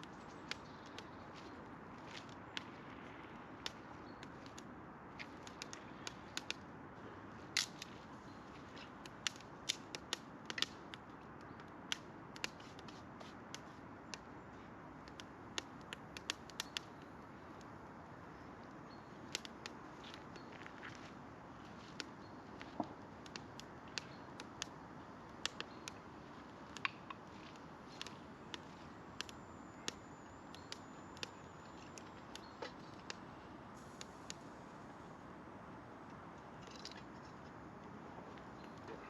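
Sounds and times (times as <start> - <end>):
campfire crackling and popping: 0.0 - 39.0
fire low hiss: 19.2 - 39.0.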